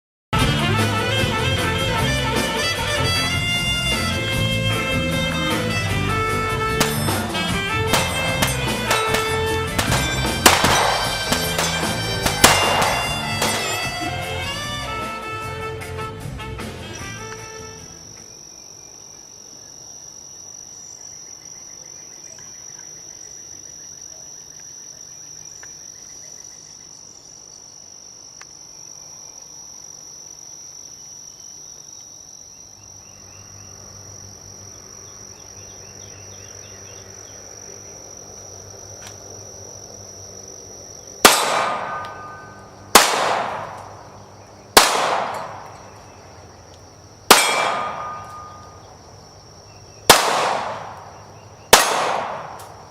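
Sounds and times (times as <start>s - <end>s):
insects trilling: 1.2s - 15.8s, 16.9s - 52.9s
gunshots with echo: 6.8s - 14.1s, 41.2s - 44.1s, 44.8s - 46.0s, 47.3s - 48.6s, 50.1s - 52.9s.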